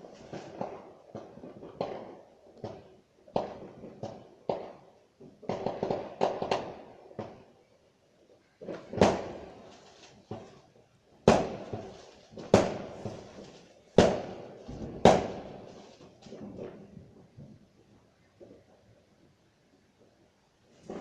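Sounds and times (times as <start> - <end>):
fireworks bangs with echo: 0.0 - 7.5, 8.5 - 17.6, 20.8 - 21.0
faint firework pops: 0.1 - 4.8, 8.6 - 17.6, 20.8 - 21.0.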